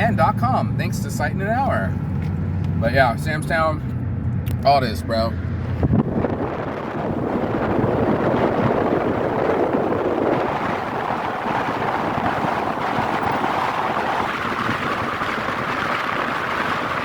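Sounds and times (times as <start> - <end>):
vehicle road noise: 0.0 - 17.0
wind rushing over microphone: 3.5 - 17.0.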